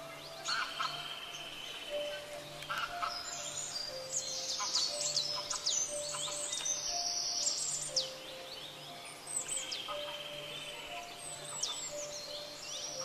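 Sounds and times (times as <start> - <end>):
birds chirping: 0.0 - 13.0
faint background music: 0.0 - 13.0.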